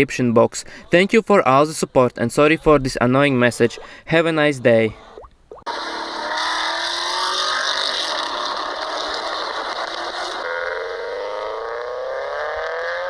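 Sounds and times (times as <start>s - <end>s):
car engine accelerating hard: 5.7s - 13.0s.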